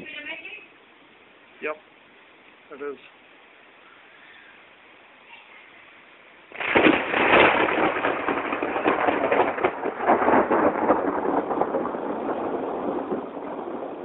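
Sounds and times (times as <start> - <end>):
thunderclap rolling: 6.5 - 14.0.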